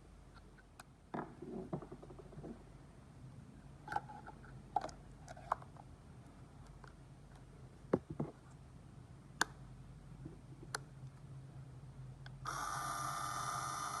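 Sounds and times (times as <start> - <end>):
small electric motor whining: 12.5 - 14.0.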